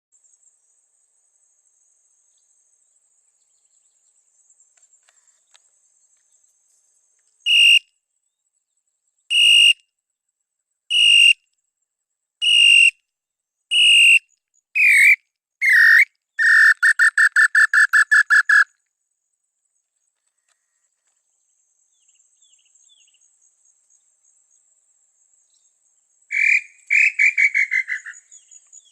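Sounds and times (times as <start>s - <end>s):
bird whistled song: 7.4s - 7.9s, 9.3s - 9.8s, 10.9s - 11.4s, 12.4s - 13.0s, 13.7s - 18.8s, 25.4s - 28.9s.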